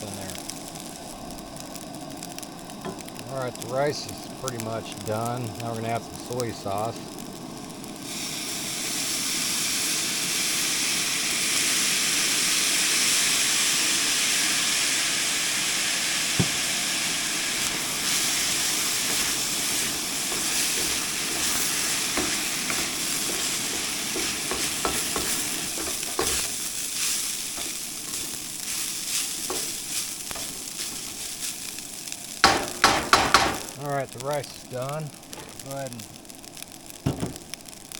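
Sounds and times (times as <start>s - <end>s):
rice sizzling in a hot pan: 0.0s - 37.9s
spatula scraping and tapping pan: 17.6s - 31.5s, 32.4s - 33.7s.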